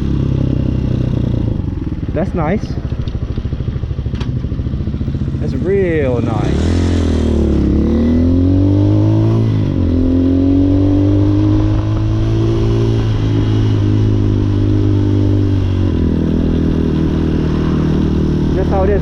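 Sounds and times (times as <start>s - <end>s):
dirt bike engine revving: 4.7s - 19.0s.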